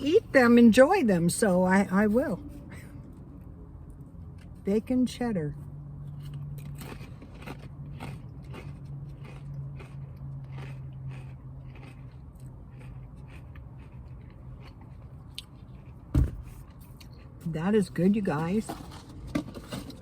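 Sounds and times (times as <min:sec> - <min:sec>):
person chewing crunchy chips: 0:05.8 - 0:17.6
loud thump: 0:16.1 - 0:16.5.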